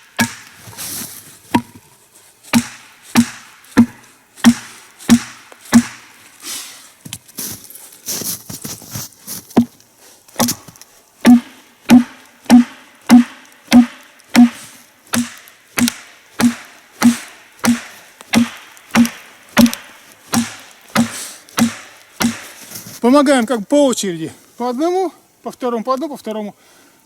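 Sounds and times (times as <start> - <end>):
wedges hammered into log: 0.0 - 0.8, 1.5 - 1.9, 2.5 - 6.2, 9.5 - 9.8, 10.4 - 22.8.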